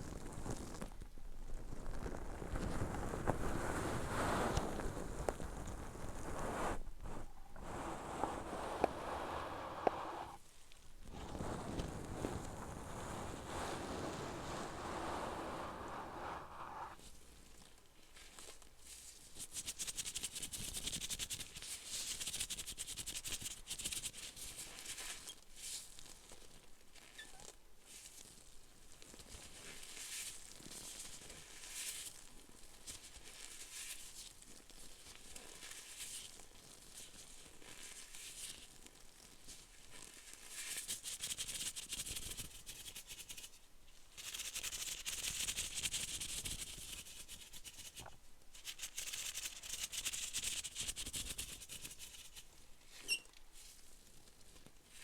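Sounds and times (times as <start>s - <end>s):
fine crackling and scratching: 0.0s - 10.4s, 11.0s - 17.0s.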